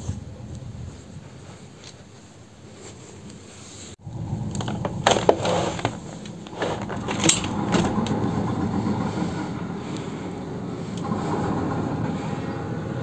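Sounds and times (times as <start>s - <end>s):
vehicle rumbling: 4.0s - 13.0s
sharp clicks and knocks: 4.5s - 8.7s.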